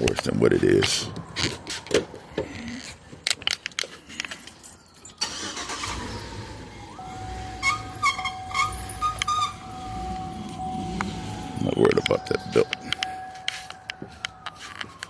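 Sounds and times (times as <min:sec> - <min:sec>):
belt squealing and chirping: 0:07.6 - 0:13.8.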